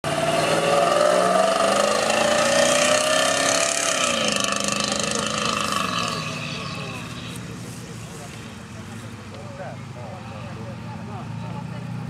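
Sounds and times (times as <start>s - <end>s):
rally car engine accelerating: 0.0s - 8.6s.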